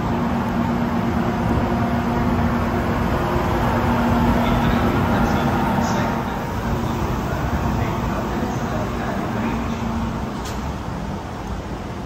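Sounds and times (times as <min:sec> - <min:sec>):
constant low hum: 0:00.0 - 0:12.0
train rumble: 0:00.0 - 0:12.0.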